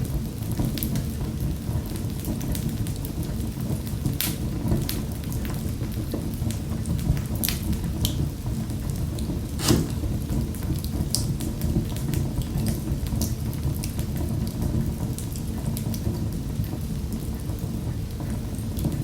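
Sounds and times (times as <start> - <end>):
fireplace fire crackling: 6.4 - 19.0.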